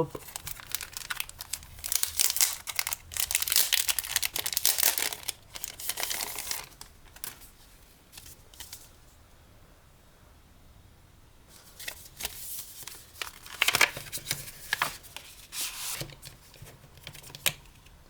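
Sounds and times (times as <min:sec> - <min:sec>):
envelope crinkling and tearing: 0:00.2 - 0:08.8, 0:11.8 - 0:17.5.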